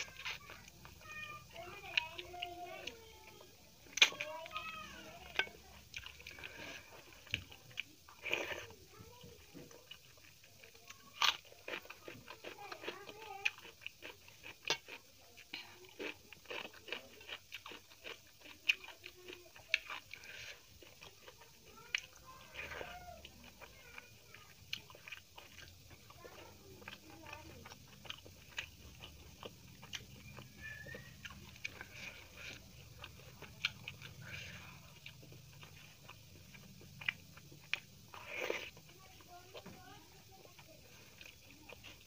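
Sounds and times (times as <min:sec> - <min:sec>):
wet chewing and mouth smacking: 0:00.0 - 0:42.0.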